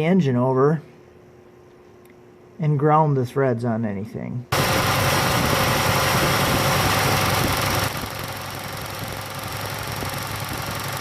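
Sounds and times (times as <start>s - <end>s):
car engine running: 4.5s - 11.0s.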